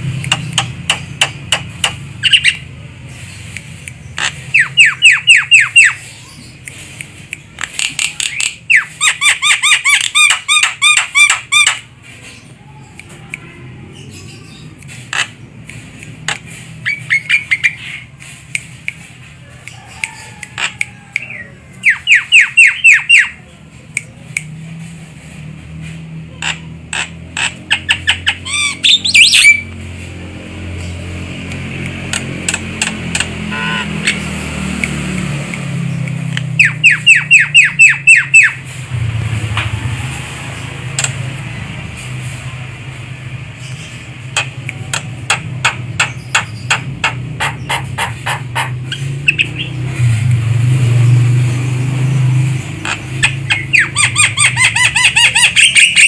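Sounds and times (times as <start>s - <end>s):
sharp bird clicks: 0.0s - 23.3s, 30.7s - 38.7s, 40.9s - 41.4s, 43.6s - 49.8s, 52.6s - 56.0s
myna calling: 32.2s - 34.3s.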